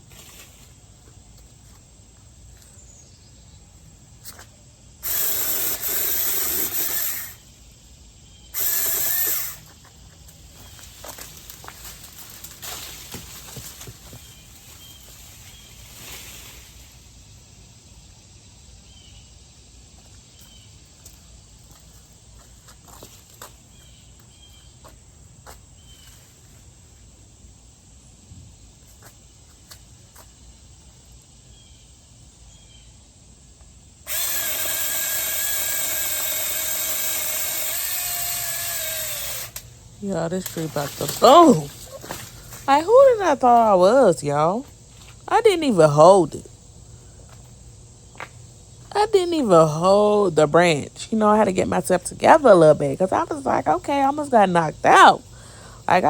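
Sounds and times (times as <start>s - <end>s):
electric chainsaw whining: 5.0s - 7.5s, 8.5s - 9.8s, 34.0s - 42.8s.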